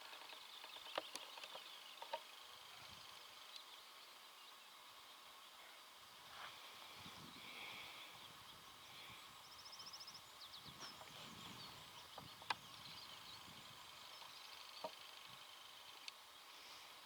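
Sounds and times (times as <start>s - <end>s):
soft rustle: 6.2s - 8.0s.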